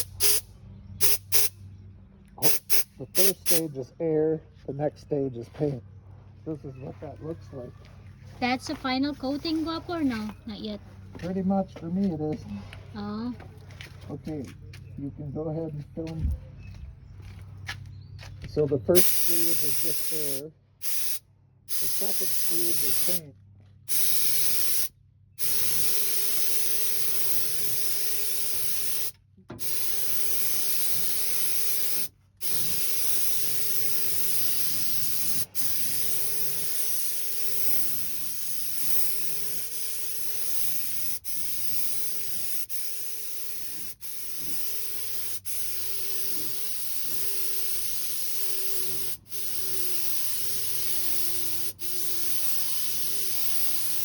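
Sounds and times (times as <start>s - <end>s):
spray gun hissing: 0.0s - 1.5s, 2.4s - 3.7s, 19.0s - 23.2s, 23.9s - 54.0s.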